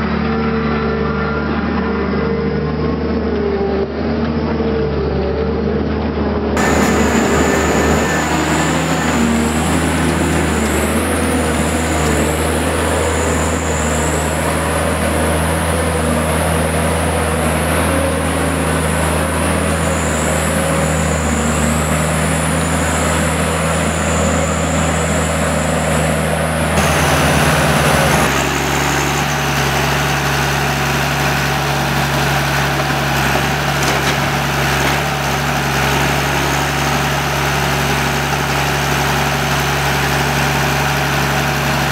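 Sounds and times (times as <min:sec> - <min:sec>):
high whine: 0:00.0 - 0:32.2
diesel engine running: 0:00.0 - 0:41.9.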